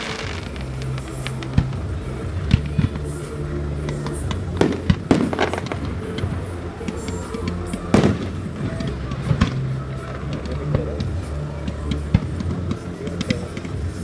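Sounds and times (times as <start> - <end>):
background music with bass: 0.0 - 14.0
fireworks bangs and crackles: 0.0 - 14.0.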